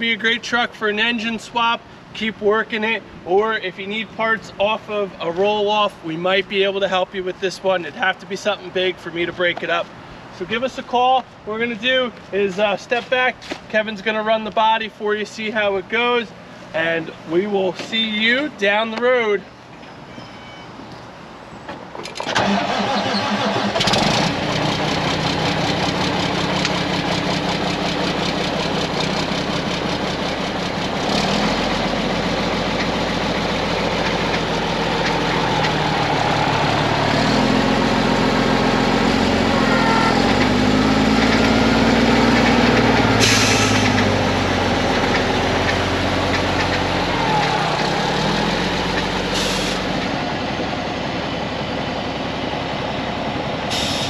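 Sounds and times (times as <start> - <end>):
diesel truck engine running: 22.4 - 54.0
short hydraulic hisses: 43.2 - 43.9, 49.4 - 49.8, 53.7 - 54.0.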